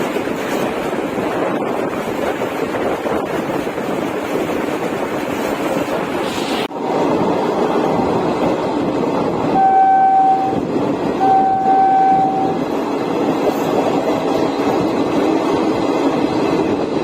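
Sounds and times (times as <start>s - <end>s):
train running on rails: 0.0s - 17.0s
train horn blasts: 9.5s - 12.6s.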